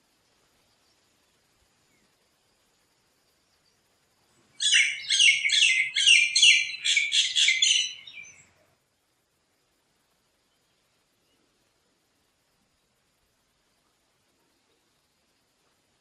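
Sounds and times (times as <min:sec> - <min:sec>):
bird chirping: 0:04.5 - 0:08.7.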